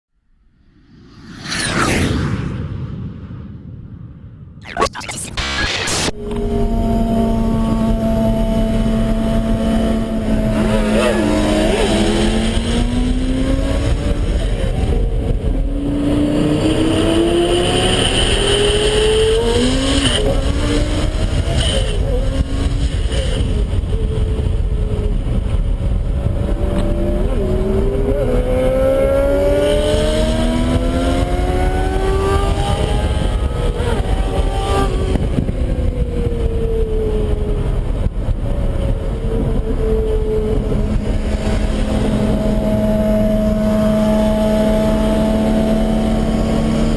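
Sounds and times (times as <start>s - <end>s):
car engine accelerating hard: 4.6s - 46.9s.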